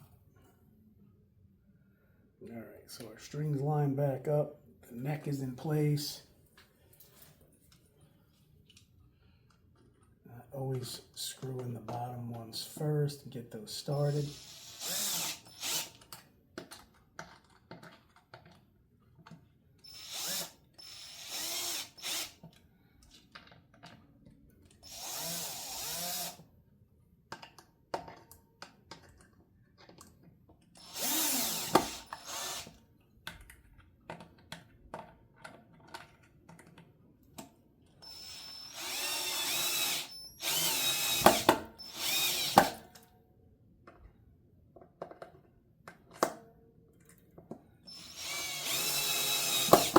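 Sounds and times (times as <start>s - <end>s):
power drill motor whine: 14.3s - 16.0s, 19.8s - 22.4s, 24.8s - 26.4s, 30.8s - 32.7s, 38.0s - 42.8s, 47.9s - 49.9s.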